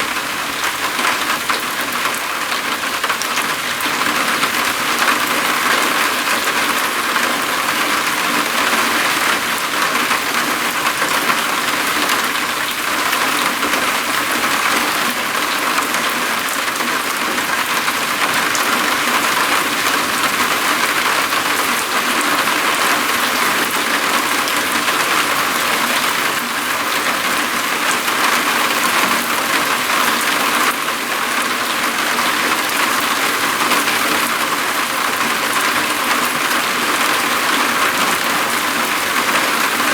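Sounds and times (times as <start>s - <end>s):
rain pattering on a roof: 0.0s - 39.9s.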